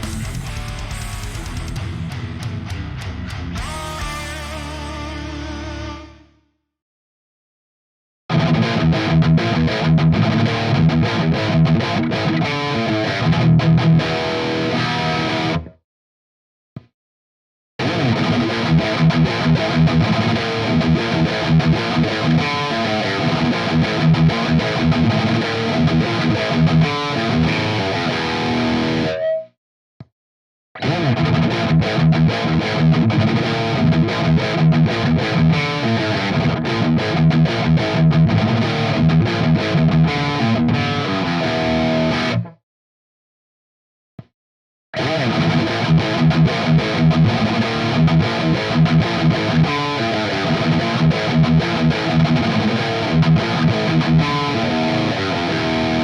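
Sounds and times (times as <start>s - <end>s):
distorted electric guitar riffing: 0.0s - 6.4s, 8.3s - 15.7s, 17.8s - 29.5s, 30.8s - 42.6s, 45.0s - 56.0s.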